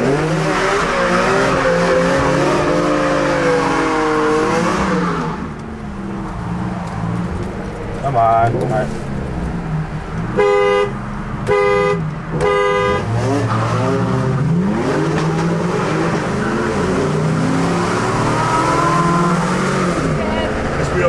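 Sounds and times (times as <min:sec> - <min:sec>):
cars accelerating hard: 0:00.0 - 0:21.0
car horn honking: 0:10.3 - 0:13.4.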